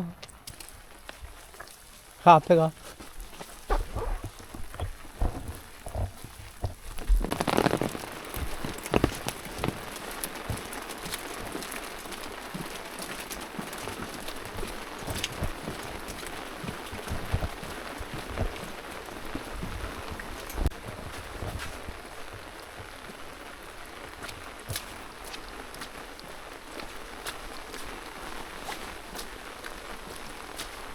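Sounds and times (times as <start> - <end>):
rain falling: 0.0 - 30.9
drops ticking on a surface: 0.1 - 23.5.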